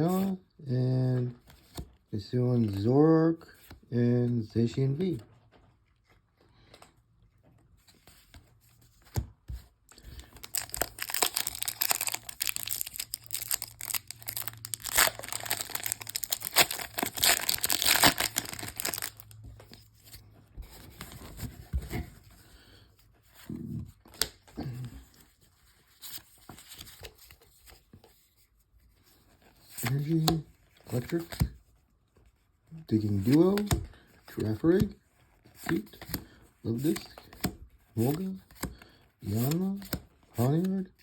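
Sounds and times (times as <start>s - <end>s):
cards rustling: 1.1s - 28.2s, 29.0s - 31.5s, 32.2s - 40.9s
foil wrapper tearing and crinkling: 10.3s - 19.4s.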